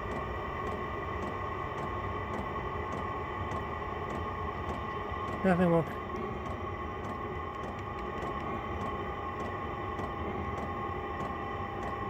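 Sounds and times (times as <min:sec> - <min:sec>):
air heater blower humming: 0:00.0 - 0:12.0.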